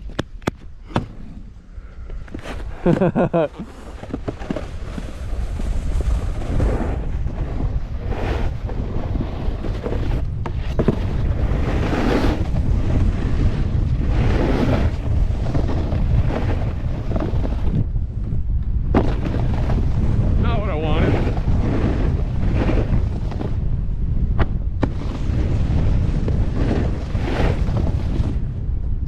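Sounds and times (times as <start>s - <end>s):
wind on microphone: 0.0s - 29.0s
snowboard scraping snow: 2.3s - 18.3s, 18.9s - 28.8s.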